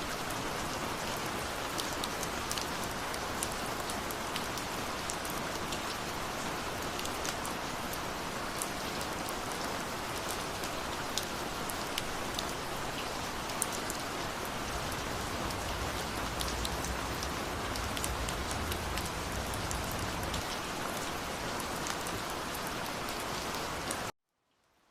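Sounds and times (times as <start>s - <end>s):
rain drops on hard surfaces: 0.0s - 24.9s
low rumble: 14.6s - 20.8s.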